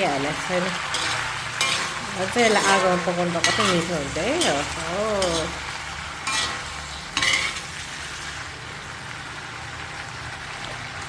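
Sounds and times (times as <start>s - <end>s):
food sizzling in a pan: 0.0s - 11.0s
spoon scraping a pan: 0.8s - 8.2s.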